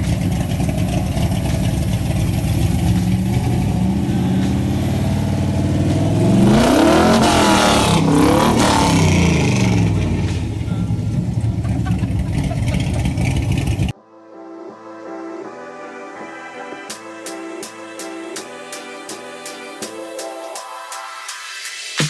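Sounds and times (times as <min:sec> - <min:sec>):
car accelerating past: 0:00.0 - 0:13.9.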